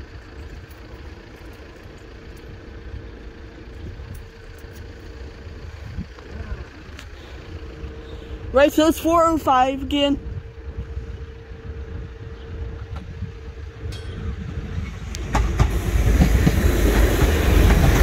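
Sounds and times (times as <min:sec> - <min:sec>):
distant train rumbling: 0:00.0 - 0:18.0
wind noise: 0:05.6 - 0:06.6, 0:10.0 - 0:18.0.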